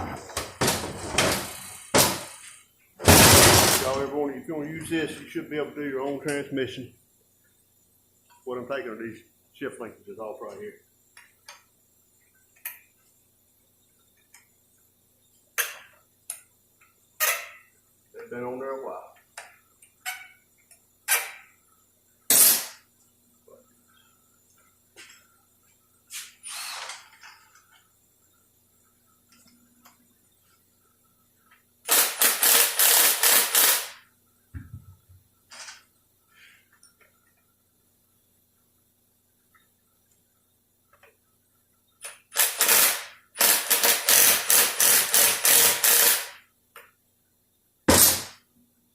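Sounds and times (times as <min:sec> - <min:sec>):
air wrench rattling: 0:01.2 - 0:04.0, 0:31.9 - 0:34.0, 0:42.0 - 0:46.4.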